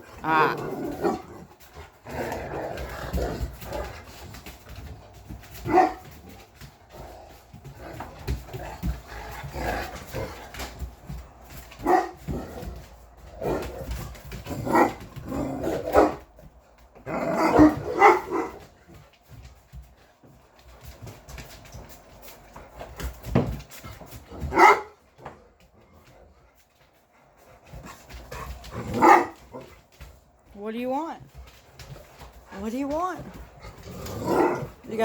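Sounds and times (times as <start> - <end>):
dogs barking: 5.6 - 6.0, 11.8 - 12.2, 17.3 - 18.6, 24.5 - 25.0, 28.8 - 29.6.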